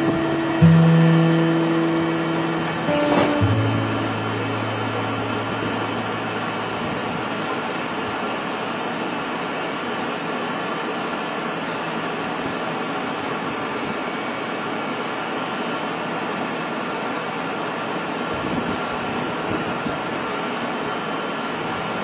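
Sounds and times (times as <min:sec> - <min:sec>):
low tone: 0:00.0 - 0:08.3
train ventilation hum and hiss: 0:00.0 - 0:22.0.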